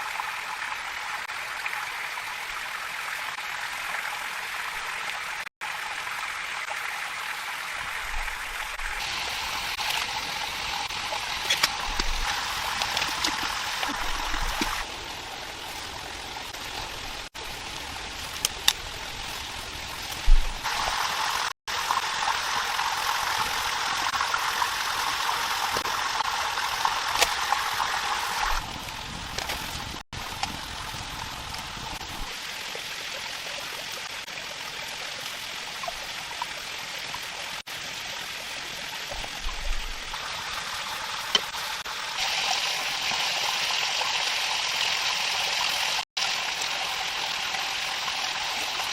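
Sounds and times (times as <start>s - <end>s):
stream water rushing: 0.0s - 48.9s.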